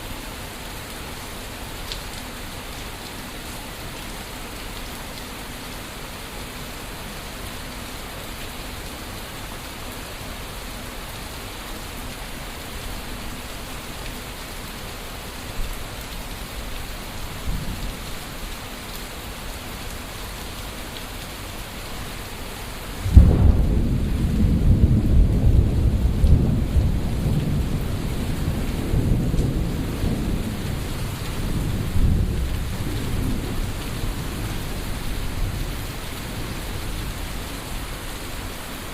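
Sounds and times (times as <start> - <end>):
steady rain falling: 0.0 - 38.9
loud thunderclap rumbling: 23.0 - 37.3
distant thunder rumbles: 23.0 - 37.4.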